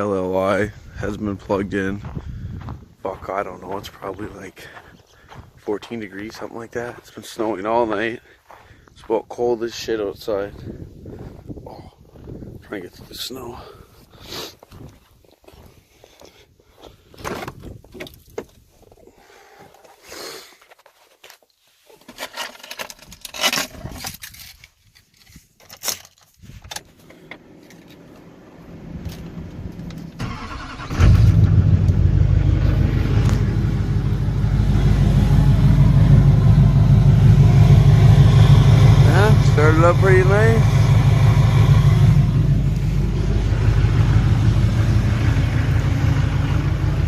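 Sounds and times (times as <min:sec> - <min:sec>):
clicks and rustles: 0:20.6 - 0:28.3
diesel engine starting and idling: 0:27.1 - 0:47.0.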